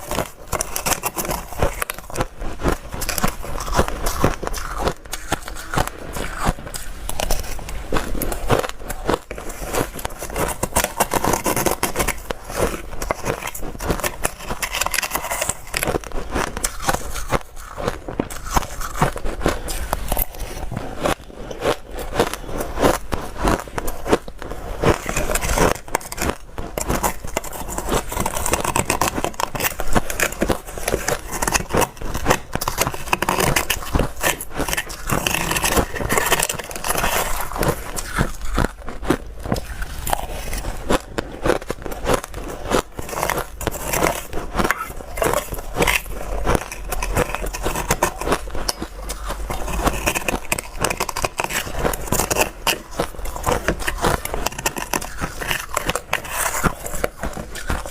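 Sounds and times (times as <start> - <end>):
person crunching ice: 0.0 - 57.9.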